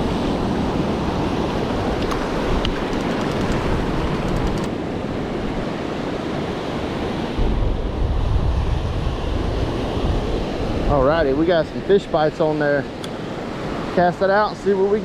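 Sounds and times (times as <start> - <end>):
ocean surf washing: 0.0 - 15.0
faint ticks: 2.0 - 4.7.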